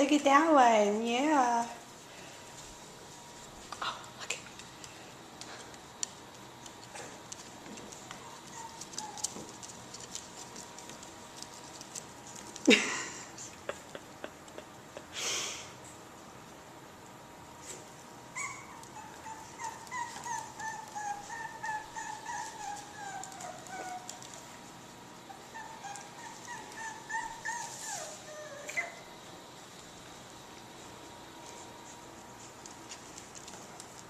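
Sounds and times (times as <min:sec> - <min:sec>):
puppy whining: 0:08.0 - 0:09.6, 0:18.3 - 0:24.6, 0:25.2 - 0:29.2.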